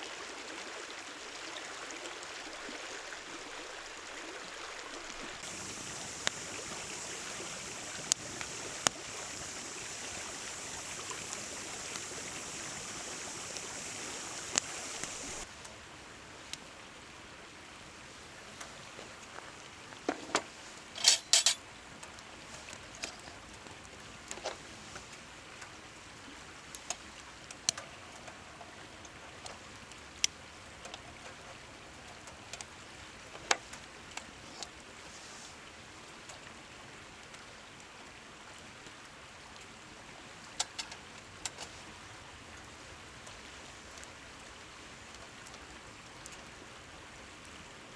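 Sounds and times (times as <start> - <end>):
steady rushing hiss: 5.4 - 15.5
wood fire crackling and popping: 5.4 - 15.5.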